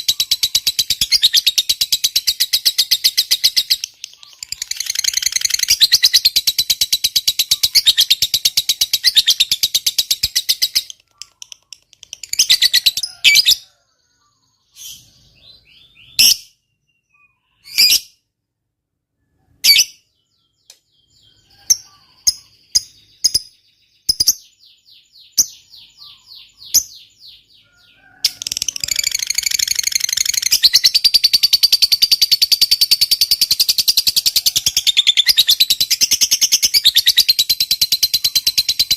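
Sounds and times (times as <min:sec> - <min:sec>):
lovebird chattering trill: 0:00.0 - 0:13.6, 0:28.3 - 0:38.9.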